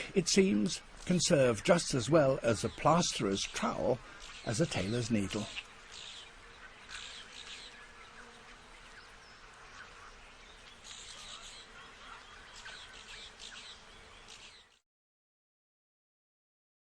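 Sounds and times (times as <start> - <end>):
insects buzzing: 0.0 - 14.8.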